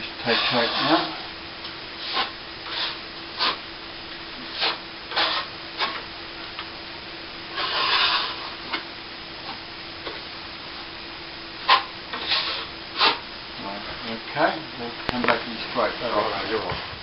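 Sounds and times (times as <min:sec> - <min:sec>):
trowel scraping plaster: 0:00.3 - 0:01.0, 0:04.5 - 0:06.0, 0:07.6 - 0:08.6, 0:11.6 - 0:13.2.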